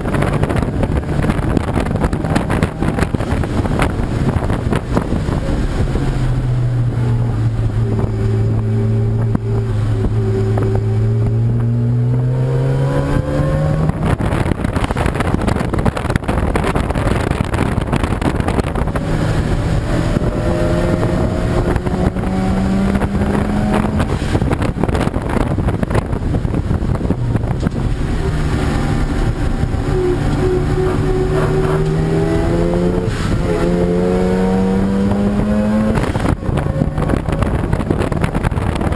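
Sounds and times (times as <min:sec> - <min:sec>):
race car engine accelerating: 0:00.0 - 0:38.9
wind noise: 0:00.0 - 0:38.9.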